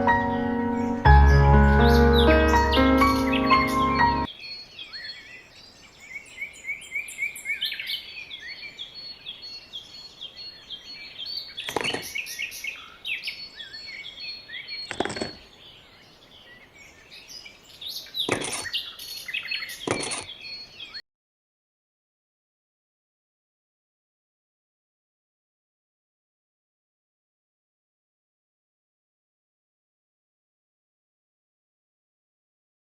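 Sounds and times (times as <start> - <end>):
sharp bird calls: 0.0 - 5.3
small birds chirping: 0.0 - 21.0.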